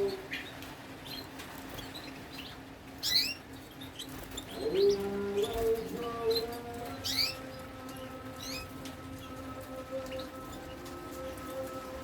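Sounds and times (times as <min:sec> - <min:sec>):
canaries chirping: 0:00.0 - 0:12.0.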